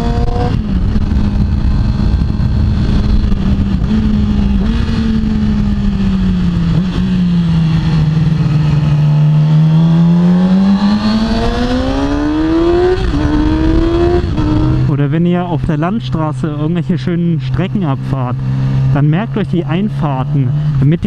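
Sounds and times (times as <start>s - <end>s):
wind rush: 0.0s - 14.9s
motorcycle engine: 0.0s - 21.0s.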